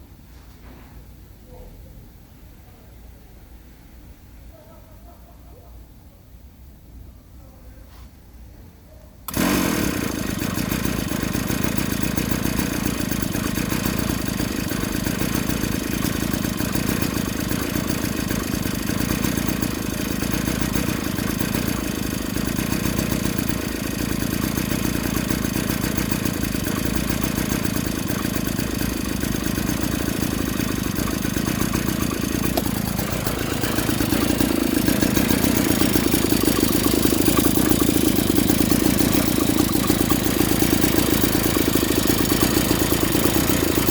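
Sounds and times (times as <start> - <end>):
two-stroke engine idling: 9.3 - 43.9.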